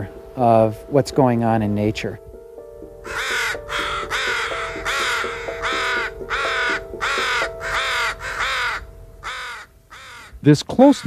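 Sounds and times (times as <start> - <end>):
crow cawing: 3.0 - 11.0
faint steady tone: 4.5 - 10.5.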